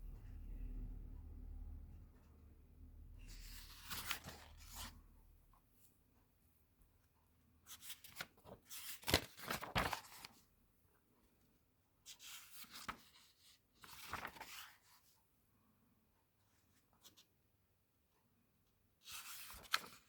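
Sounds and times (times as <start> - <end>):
paper pages rustling: 3.3 - 5.0, 7.7 - 10.4, 12.1 - 15.1, 19.0 - 20.0.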